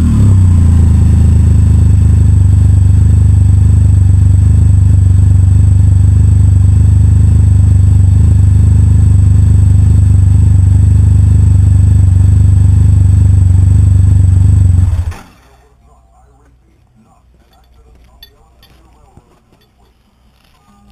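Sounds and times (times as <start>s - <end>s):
deep motorcycle exhaust note: 0.0s - 15.2s.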